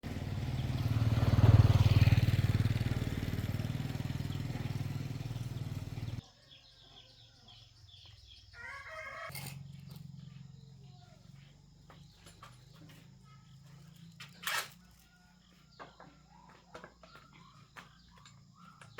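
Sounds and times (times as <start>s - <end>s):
motorcycle engine running: 0.0s - 6.2s, 9.4s - 14.4s
faint bird chirps: 5.5s - 18.9s.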